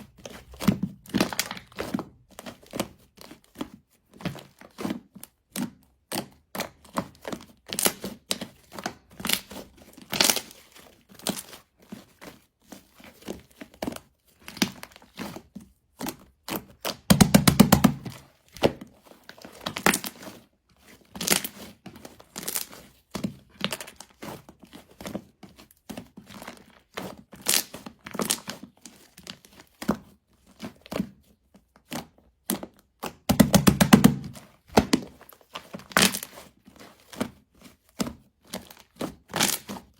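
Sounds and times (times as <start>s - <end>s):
soft material crinkling: 6.1s - 16.8s, 18.0s - 32.1s, 34.2s - 39.9s.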